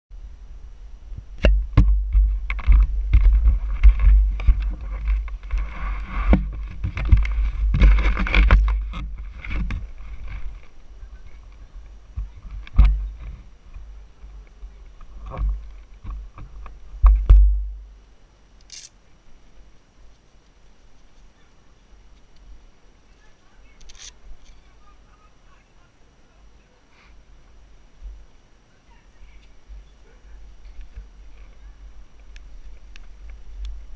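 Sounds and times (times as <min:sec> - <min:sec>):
wind buffeting microphone: 0:00.2 - 0:17.8
sharp knocks and clicks: 0:01.4 - 0:05.6, 0:12.2 - 0:13.8, 0:15.2 - 0:17.8.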